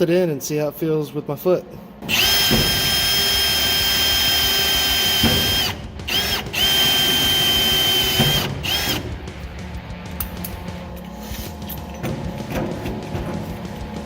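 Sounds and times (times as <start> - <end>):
power drill drilling: 2.1 - 9.0.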